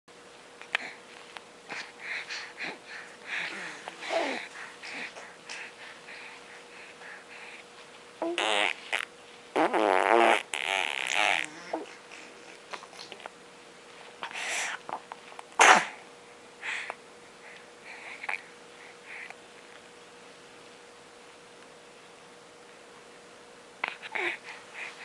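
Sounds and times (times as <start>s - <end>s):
farts: 8.3s - 11.8s.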